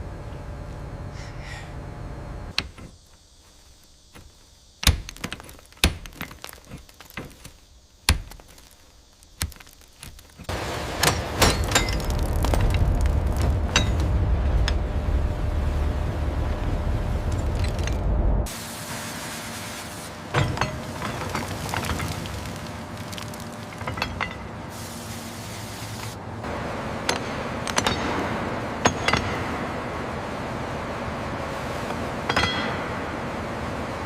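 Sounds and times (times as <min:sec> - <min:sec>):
sharp knocks and clanks: 0:09.4 - 0:14.9, 0:20.3 - 0:22.3, 0:26.4 - 0:30.0, 0:32.2 - 0:33.0
low rumble with rapid clattering: 0:10.5 - 0:18.5.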